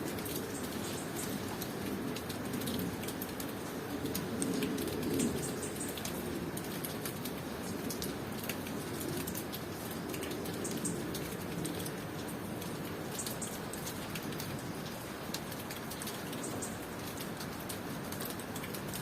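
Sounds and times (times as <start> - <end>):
rain falling: 0.0 - 19.0
raindrops ticking close by: 0.0 - 19.0.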